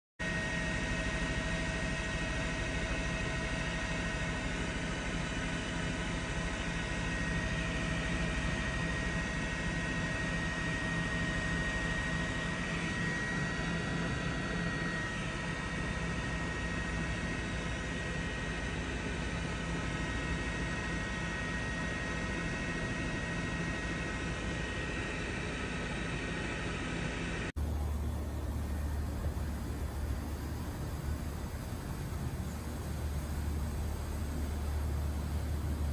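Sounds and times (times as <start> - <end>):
jet engines droning: 0.4 - 35.9
high whine: 27.6 - 35.9.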